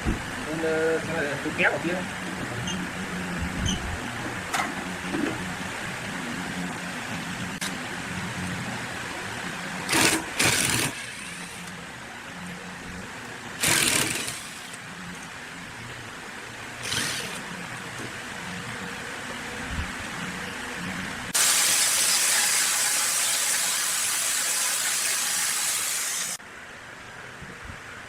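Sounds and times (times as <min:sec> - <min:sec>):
small motor humming: 0:13.6 - 0:14.8, 0:16.8 - 0:17.6
loud noise bursts: 0:21.3 - 0:26.4.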